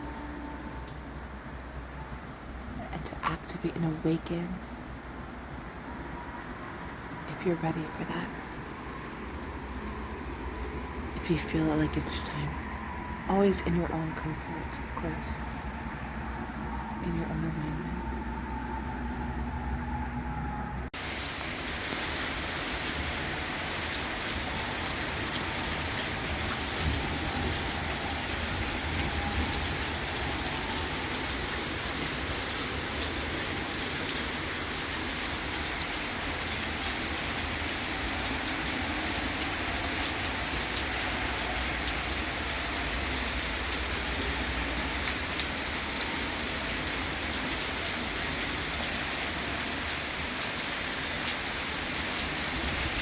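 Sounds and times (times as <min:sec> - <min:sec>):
rain falling: 0:00.0 - 0:15.7, 0:20.9 - 0:53.0
rain drop ticks: 0:21.0 - 0:53.0.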